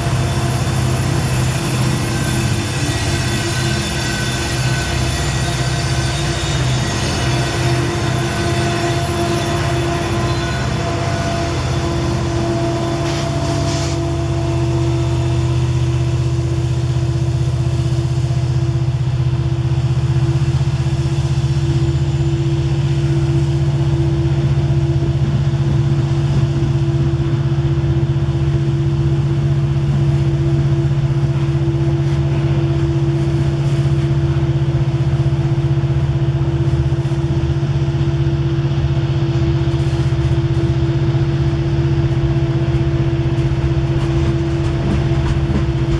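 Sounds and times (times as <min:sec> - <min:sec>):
hiss: 0:12.8 - 0:14.2.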